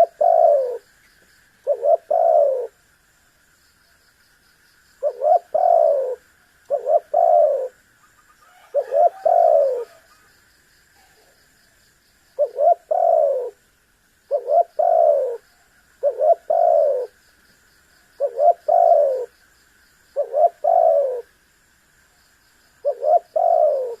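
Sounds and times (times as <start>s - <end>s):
dove cooing: 0.0s - 0.8s, 1.6s - 2.8s, 5.0s - 7.8s, 8.4s - 10.2s, 12.4s - 13.6s, 14.3s - 17.2s, 18.2s - 19.4s, 20.2s - 21.3s, 22.8s - 24.0s.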